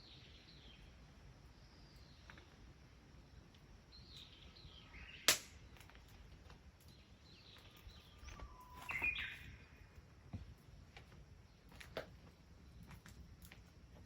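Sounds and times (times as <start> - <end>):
faint bird chirps: 0.0 - 2.6, 3.8 - 5.8, 6.8 - 10.0.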